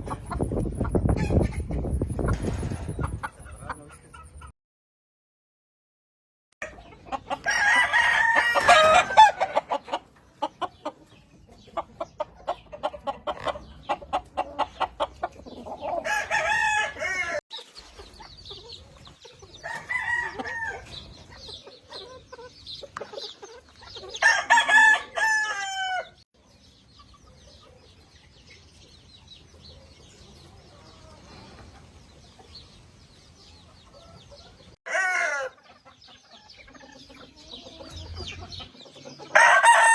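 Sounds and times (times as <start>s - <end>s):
roosters crowing: 6.6s - 10.0s, 15.5s - 17.4s, 19.5s - 21.2s, 24.1s - 26.2s, 34.0s - 36.0s, 39.2s - 39.9s.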